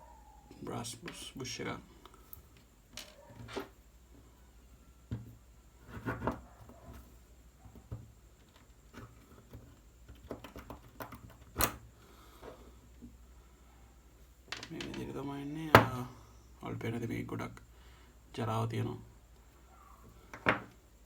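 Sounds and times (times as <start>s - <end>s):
small parts clicking and knocking: 2.0s - 3.7s, 7.8s - 11.8s, 14.5s - 15.1s.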